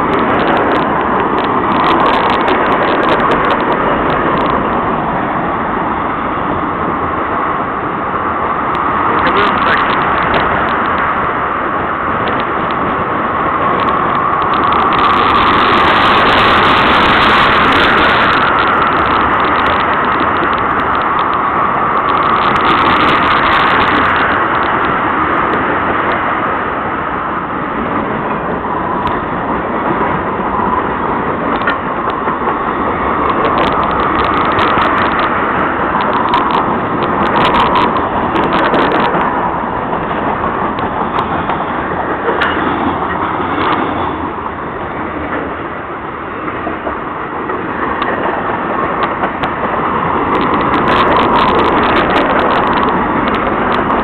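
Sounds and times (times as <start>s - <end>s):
steel wheels rumbling on rail: 0.0s - 54.0s
wheels clicking and clattering: 0.0s - 54.0s.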